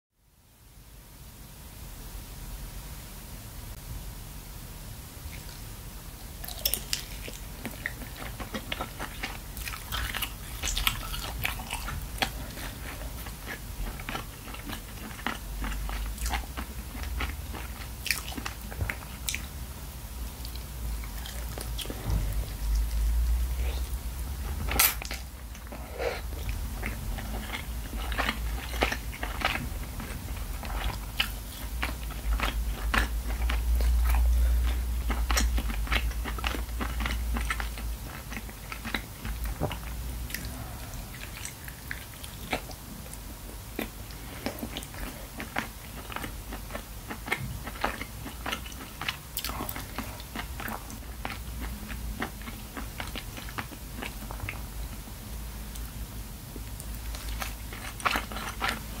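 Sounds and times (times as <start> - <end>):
close chewing: 5.3 - 19.6, 20.2 - 55.0, 56.5 - 59.0
low rumble: 18.9 - 31.1.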